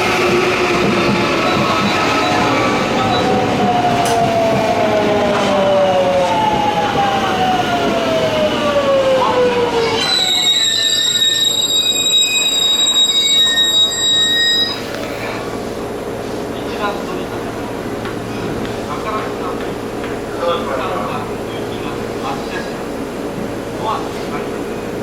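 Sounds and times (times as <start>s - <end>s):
train brake squeal: 9.9s - 14.9s.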